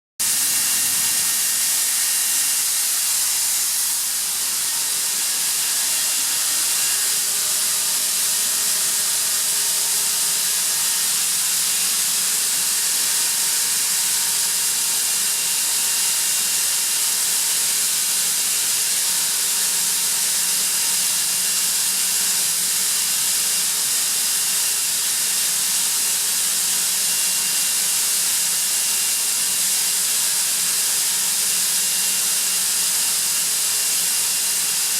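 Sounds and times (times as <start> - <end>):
air compressor hissing: 0.2 - 8.1.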